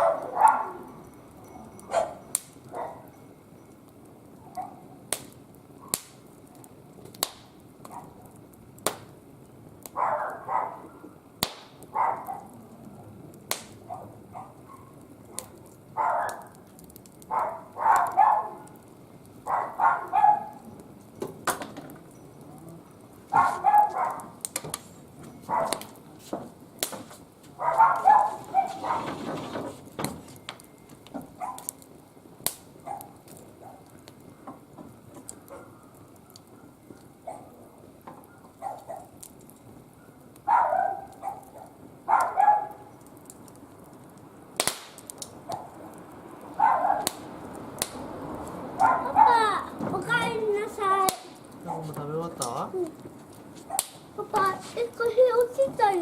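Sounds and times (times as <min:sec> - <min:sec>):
dog barking: 0:00.0 - 0:00.9, 0:01.9 - 0:03.1, 0:04.5 - 0:04.9, 0:07.9 - 0:08.3, 0:10.0 - 0:11.0, 0:11.9 - 0:12.6, 0:13.8 - 0:16.6, 0:17.3 - 0:18.8, 0:19.4 - 0:20.6, 0:23.3 - 0:24.4, 0:25.5 - 0:25.9, 0:27.6 - 0:29.1, 0:31.4 - 0:31.7, 0:32.8 - 0:33.9, 0:35.5 - 0:37.6, 0:38.2 - 0:39.2, 0:40.0 - 0:42.9, 0:45.5 - 0:45.8, 0:46.6 - 0:47.1, 0:48.8 - 0:49.4, 0:51.6 - 0:52.0
wood fire crackling and popping: 0:00.0 - 0:56.0.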